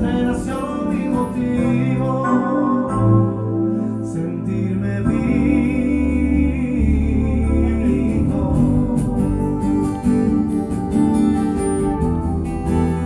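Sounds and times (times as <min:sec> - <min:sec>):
instrumental band music: 0:06.9 - 0:13.0.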